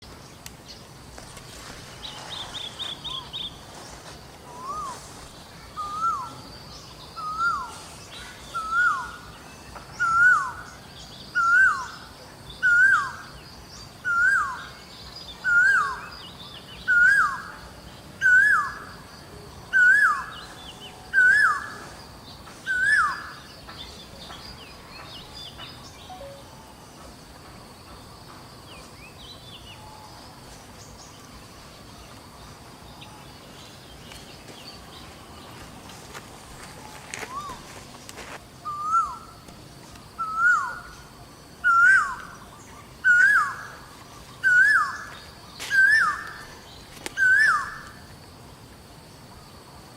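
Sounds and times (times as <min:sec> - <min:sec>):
faint high hum: 0:00.1 - 0:49.8
distant bird chirps: 0:19.7 - 0:48.2.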